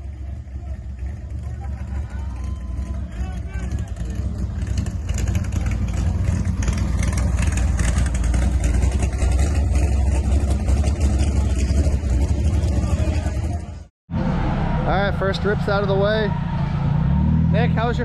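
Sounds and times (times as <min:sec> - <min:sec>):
constant rushing noise: 0:00.0 - 0:13.9
engine running hard: 0:00.0 - 0:18.0.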